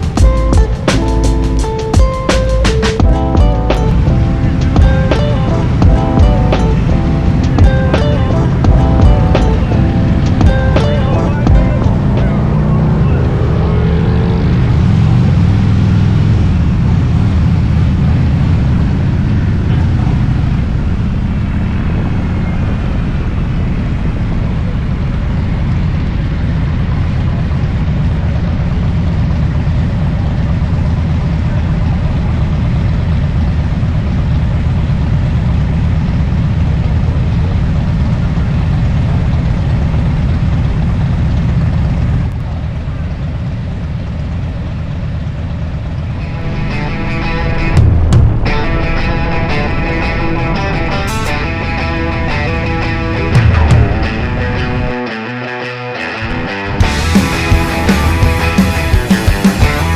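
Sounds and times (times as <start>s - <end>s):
motorcycle engine cruising: 0.0s - 24.3s, 56.3s - 59.9s.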